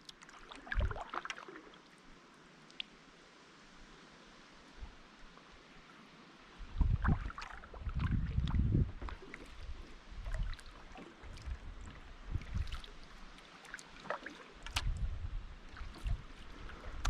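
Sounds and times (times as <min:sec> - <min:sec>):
paddle strokes splashing water: 0:00.0 - 0:02.0, 0:06.6 - 0:17.0.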